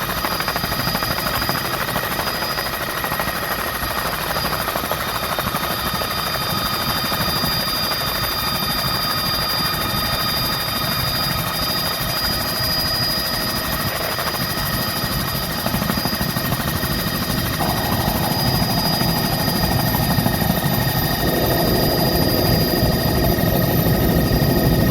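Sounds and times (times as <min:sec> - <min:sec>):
helicopter turbine whine: 0:00.0 - 0:24.9
rotor rumble: 0:17.6 - 0:24.9.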